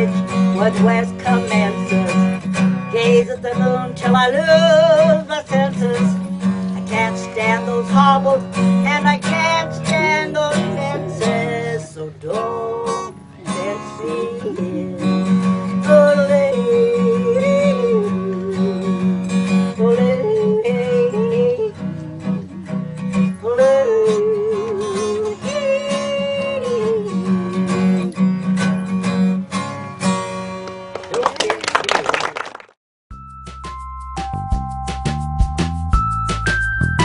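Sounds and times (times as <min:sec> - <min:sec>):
strummed acoustic guitar: 0:00.0 - 0:31.0
woman yodeling: 0:08.9 - 0:15.3, 0:15.9 - 0:18.9.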